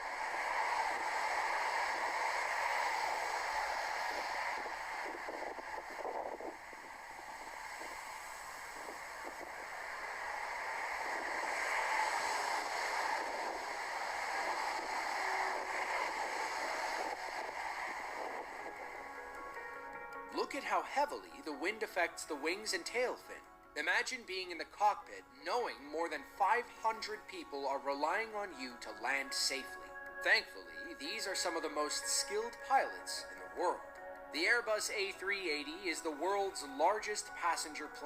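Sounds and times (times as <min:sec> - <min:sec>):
gusty wind on microphone: 0:00.0 - 0:20.0.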